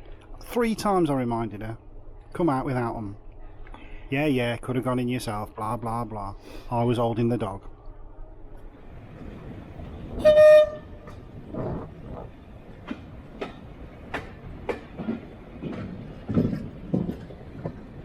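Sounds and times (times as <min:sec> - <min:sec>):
train rumble: 0:00.0 - 0:18.0
train whistle toot: 0:10.2 - 0:11.1.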